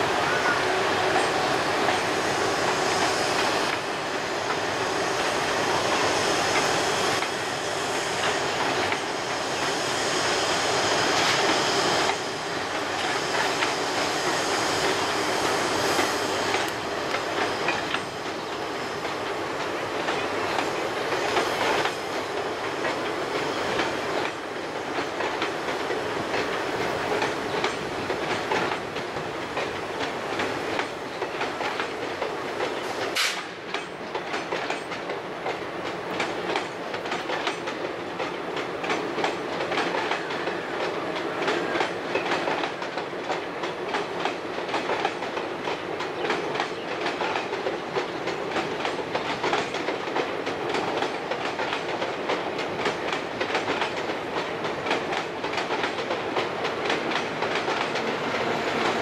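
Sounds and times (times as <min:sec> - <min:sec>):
train coaches rumbling past: 0:00.0 - 0:59.0
wheels clicking over rail joints: 0:16.0 - 0:59.0.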